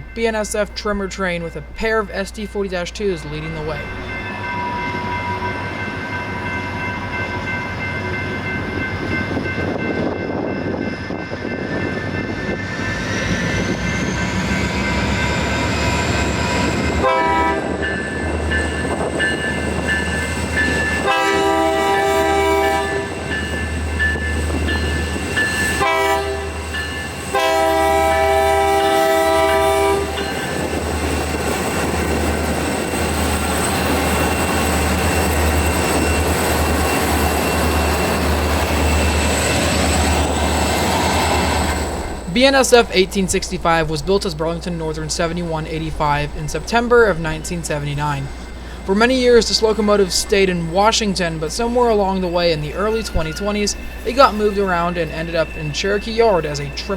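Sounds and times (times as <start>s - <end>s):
diesel locomotives passing: 0.0s - 56.9s
locomotive air horn: 17.0s - 17.8s, 21.0s - 23.2s, 25.8s - 26.7s, 27.3s - 30.2s.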